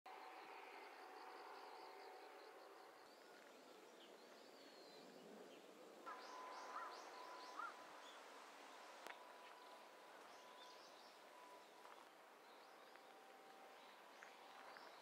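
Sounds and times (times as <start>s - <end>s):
birds calling: 3.0s - 15.0s.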